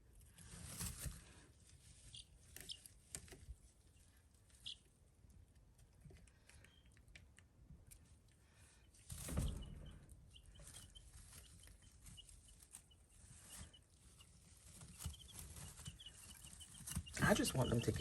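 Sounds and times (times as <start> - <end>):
chicks peeping: 1.8 - 5.0, 8.7 - 18.0.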